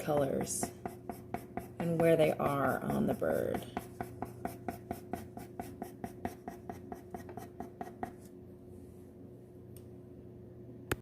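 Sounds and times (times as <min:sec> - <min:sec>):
pencil scribbling on paper: 0:00.0 - 0:08.2.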